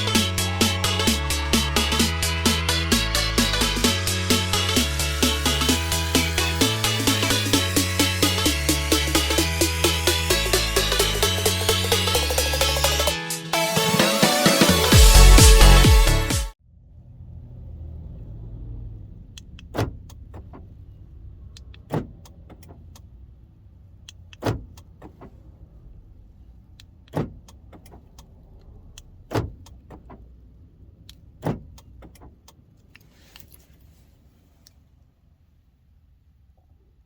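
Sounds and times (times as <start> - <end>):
door lock actuators clunking: 24.3 - 25.3.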